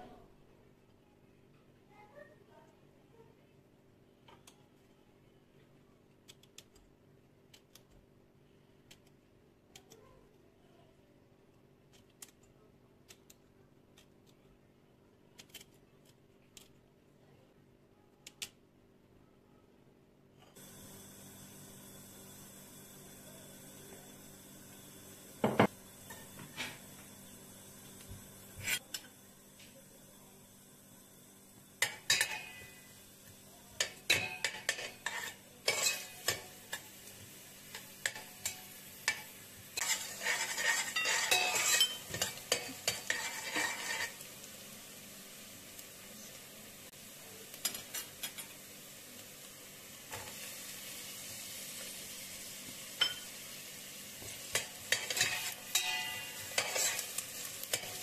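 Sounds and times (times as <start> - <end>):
onion sizzling in oil: 20.6 - 58.0
spoon scraping a pot: 31.8 - 32.9, 33.8 - 36.9, 37.7 - 44.3, 54.2 - 58.0.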